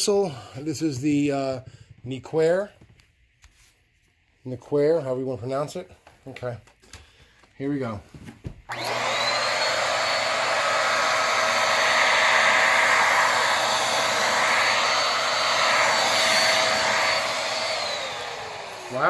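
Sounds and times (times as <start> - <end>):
vacuum cleaner running on rug: 8.7 - 19.0.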